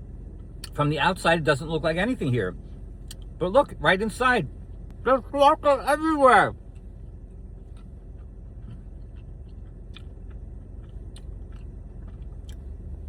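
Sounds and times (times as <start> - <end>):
steady low rumble: 0.0 - 13.0
person chewing a cookie: 7.6 - 13.0.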